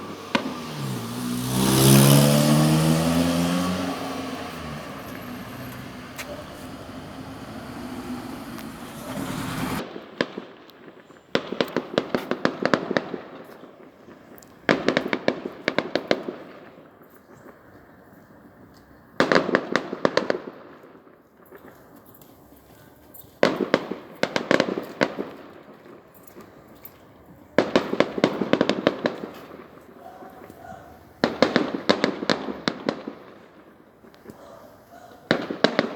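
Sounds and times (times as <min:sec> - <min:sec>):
fireworks crackling: 0:00.0 - 0:09.8, 0:31.0 - 0:35.9
background noise: 0:00.0 - 0:35.9.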